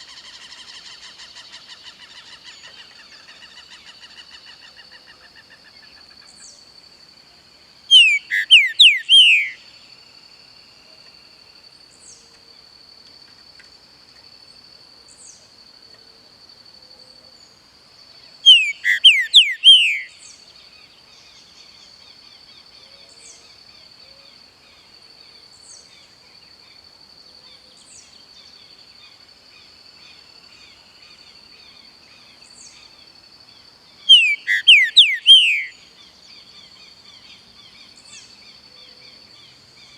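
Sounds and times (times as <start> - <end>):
bird whistling down-sweeping notes: 7.9 - 9.6, 18.5 - 20.1, 34.1 - 35.8.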